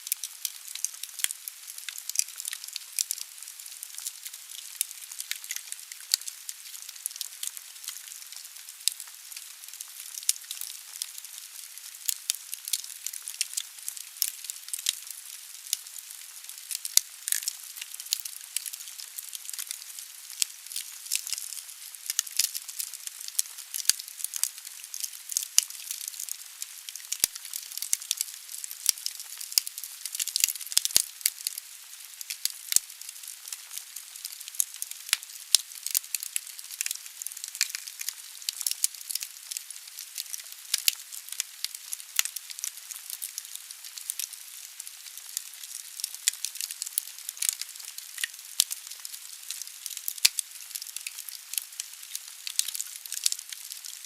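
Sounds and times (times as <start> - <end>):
wood fire crackling: 0.0 - 39.6, 40.2 - 43.4, 44.0 - 48.9, 52.5 - 53.9.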